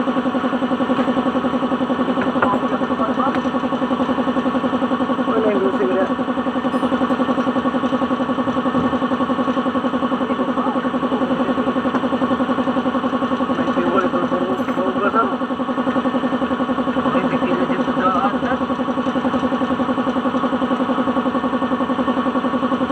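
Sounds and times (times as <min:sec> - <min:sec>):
engine idling: 0:00.0 - 0:22.9.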